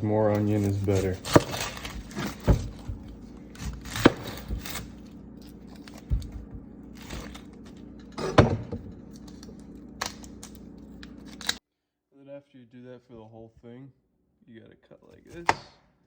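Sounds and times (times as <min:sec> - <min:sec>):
steady low hum: 0:00.0 - 0:11.6
knife chopping on cutting board: 0:00.6 - 0:06.7.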